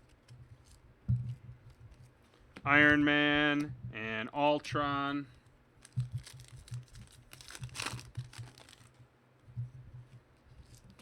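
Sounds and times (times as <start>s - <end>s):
packaging rustling and tearing: 5.8s - 9.0s, 10.5s - 11.0s.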